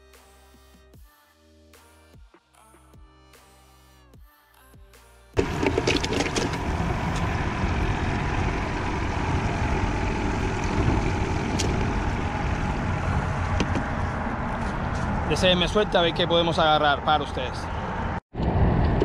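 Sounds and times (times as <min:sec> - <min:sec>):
loud outdoor rumble and hiss: 0:05.4 - 0:19.0.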